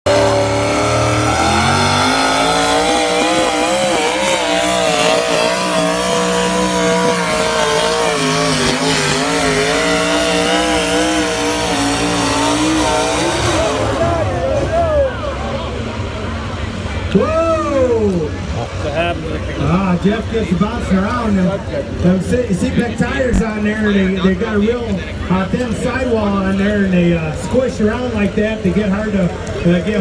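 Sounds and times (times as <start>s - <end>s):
truck engine revving hard: 0.0s - 17.2s.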